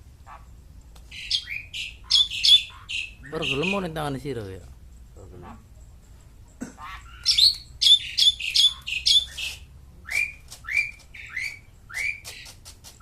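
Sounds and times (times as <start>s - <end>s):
high bird-like chirps: 1.1s - 4.0s, 6.8s - 12.6s.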